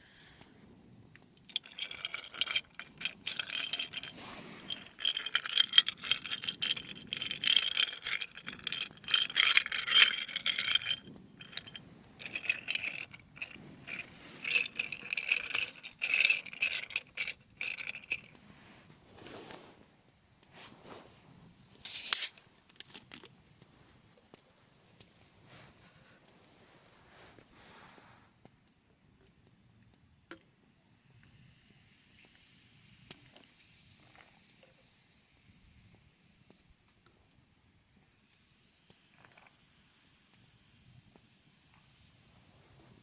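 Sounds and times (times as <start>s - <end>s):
metal objects rattling and clinking: 1.4s - 18.4s.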